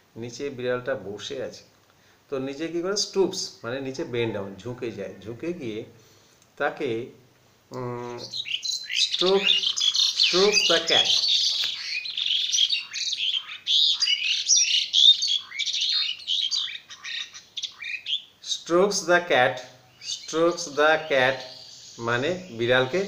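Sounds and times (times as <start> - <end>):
man speaking: 0.2 - 1.7, 2.3 - 6.0, 6.6 - 8.3, 9.2 - 9.6, 10.3 - 11.2, 18.4 - 23.0
birds chirping: 7.7 - 23.0.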